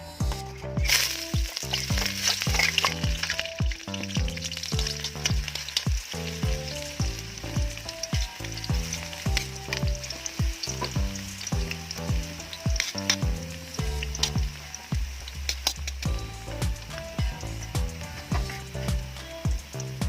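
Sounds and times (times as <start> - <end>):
background music with a beat: 0.0 - 20.0
food sizzling in a pan: 0.0 - 20.0.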